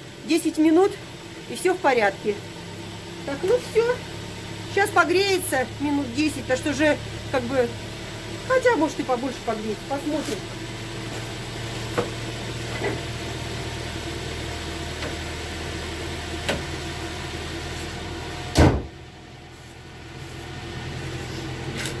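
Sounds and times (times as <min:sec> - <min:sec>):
car engine idling: 0:00.0 - 0:22.0
loud slam: 0:18.5 - 0:19.0.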